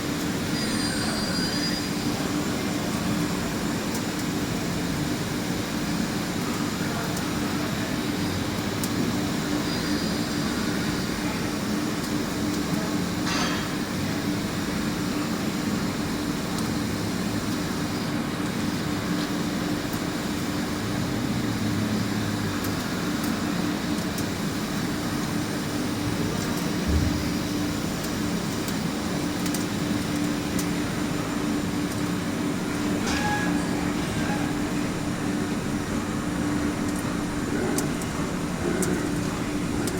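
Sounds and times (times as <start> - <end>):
lathe machine hum: 30.8 - 39.9.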